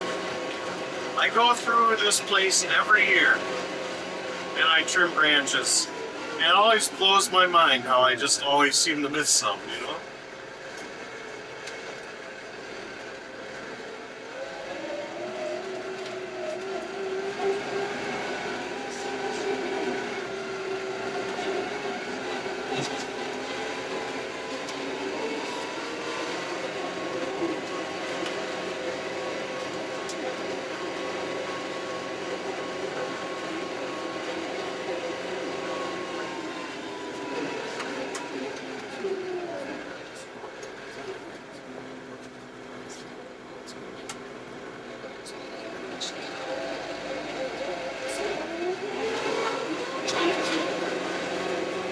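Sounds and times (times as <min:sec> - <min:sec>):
tractor diesel engine running: 0:00.0 - 0:10.4.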